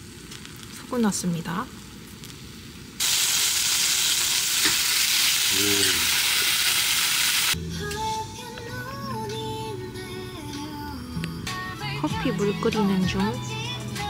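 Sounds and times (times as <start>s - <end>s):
food sizzling in frying pan: 3.0s - 7.6s.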